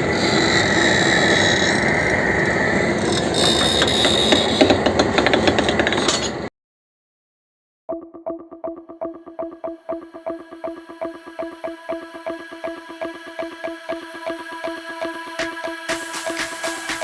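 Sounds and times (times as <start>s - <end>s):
woodworking machine clattering: 3.0s - 6.5s.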